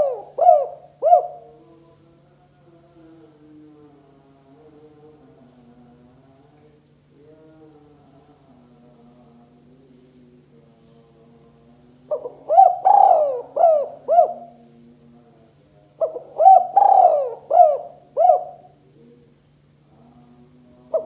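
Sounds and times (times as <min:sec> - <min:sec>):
dove cooing: 0:00.0 - 0:01.6, 0:12.1 - 0:14.6, 0:16.0 - 0:19.0
faint steady hum: 0:00.0 - 0:21.0.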